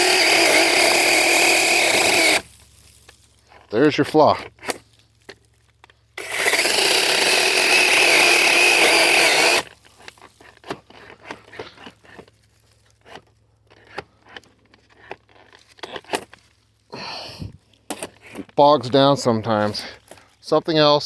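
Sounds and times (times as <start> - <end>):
chainsaw cutting a branch: 0.0 - 2.6, 6.2 - 12.2.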